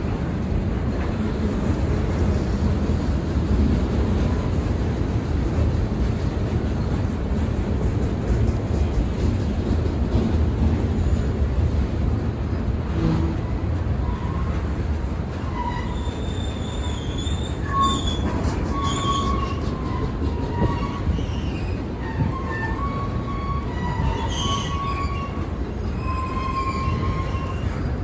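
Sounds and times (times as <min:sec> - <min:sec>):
freight train rumbling past: 0:00.0 - 0:28.0
train wheels squealing: 0:14.0 - 0:28.0.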